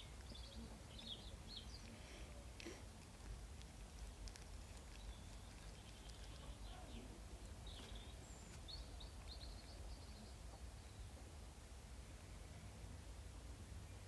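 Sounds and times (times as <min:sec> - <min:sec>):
faint bird chirps and trills: 0:04.8 - 0:11.2.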